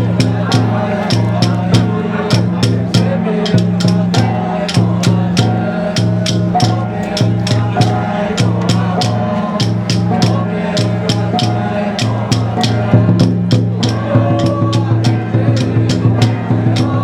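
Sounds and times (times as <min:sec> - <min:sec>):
wavering melody: 0:00.0 - 0:13.2
quick percussion strokes: 0:00.0 - 0:17.0.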